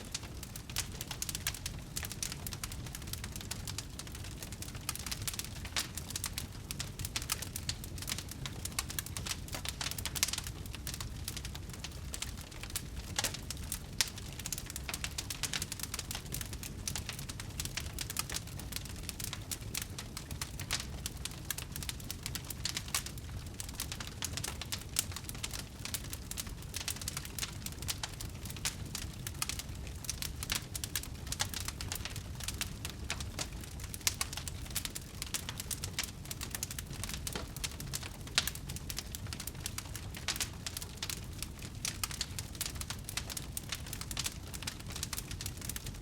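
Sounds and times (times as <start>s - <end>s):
flames rumbling: 0.0s - 46.0s
wood fire crackling: 0.0s - 46.0s.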